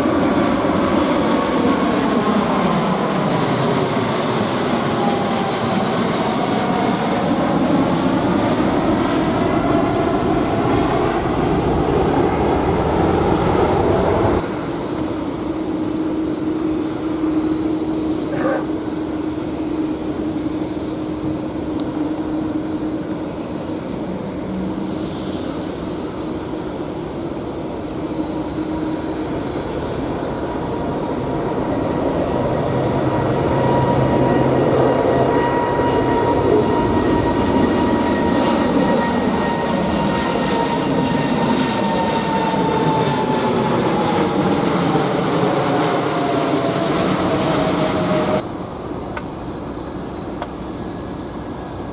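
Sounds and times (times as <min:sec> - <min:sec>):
jet engines roaring at takeoff: 0:00.0 - 0:51.9.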